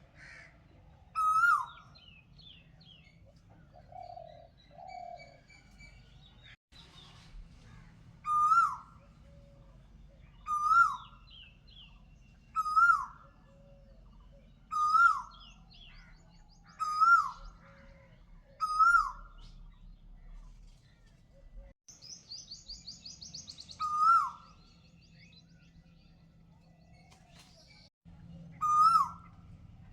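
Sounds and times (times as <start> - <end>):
bird calling: 1.2 - 6.5, 8.2 - 19.7, 22.0 - 25.7, 28.5 - 29.6.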